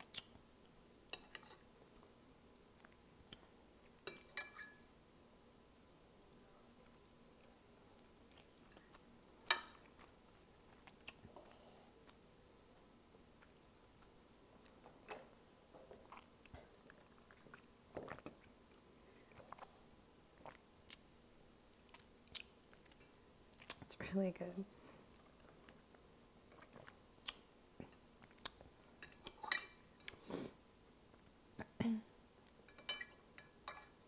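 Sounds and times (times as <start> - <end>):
person chewing noodles: 9.8 - 12.2, 16.0 - 21.0, 21.7 - 23.8, 25.1 - 29.4.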